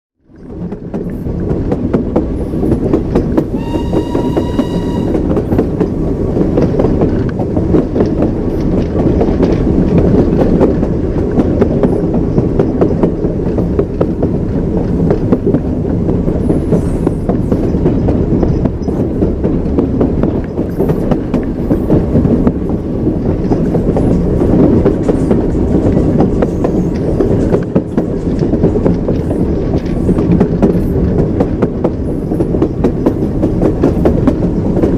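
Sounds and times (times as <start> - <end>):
train rumbling: 0.2 - 34.9
wheels clacking over rail joints: 0.3 - 34.9
train horn: 3.5 - 5.6.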